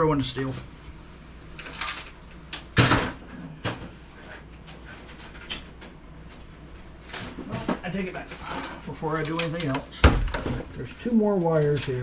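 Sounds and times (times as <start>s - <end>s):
metal computer parts clattering: 8.3s - 10.7s.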